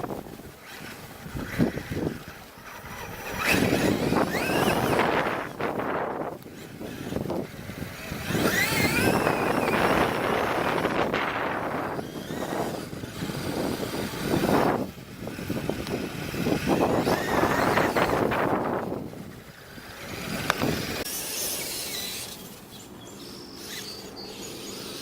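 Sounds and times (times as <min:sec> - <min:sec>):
electric motor whine: 0:00.0 - 0:25.0
rough tyre noise: 0:00.0 - 0:25.0.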